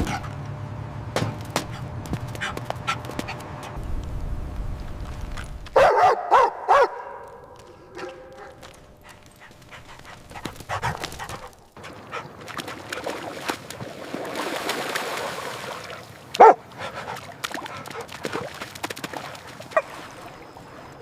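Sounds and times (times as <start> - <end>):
puppy barking: 5.8 - 8.7, 16.4 - 16.6
puppies playing and scuffling: 7.1 - 13.9.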